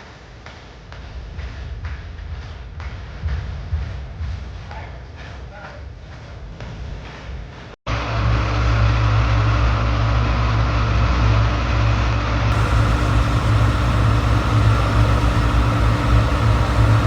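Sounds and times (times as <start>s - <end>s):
vehicle engine rumbling: 12.5s - 17.0s.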